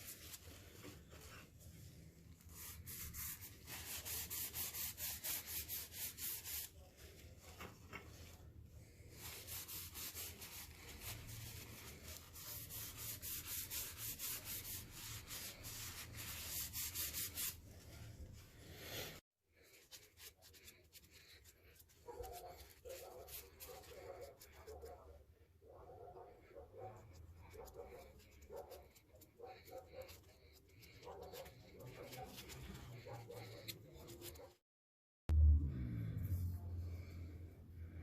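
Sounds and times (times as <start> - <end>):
sandpaper rubbing: 0.0 - 1.5, 2.4 - 6.8, 9.1 - 19.0, 19.6 - 24.9, 27.2 - 34.6.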